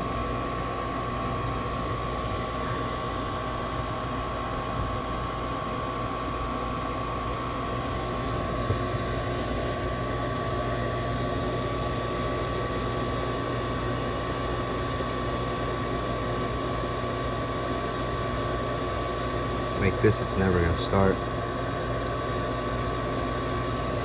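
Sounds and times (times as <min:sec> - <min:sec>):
fan motor humming: 0:00.0 - 0:24.0.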